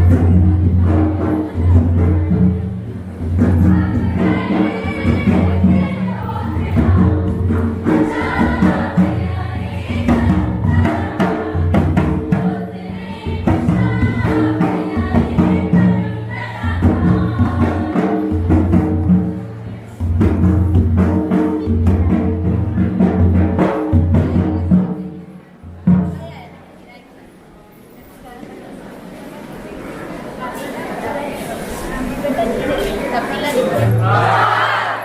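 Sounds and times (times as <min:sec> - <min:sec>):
choir singing: 0:00.0 - 0:19.6, 0:32.4 - 0:35.0
drum strikes: 0:00.0 - 0:26.3.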